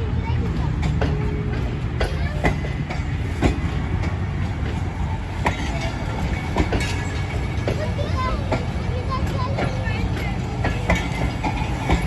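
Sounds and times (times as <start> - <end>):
train rumbling past: 0.0 - 12.0
wheels clanking over rail joints: 0.0 - 12.0.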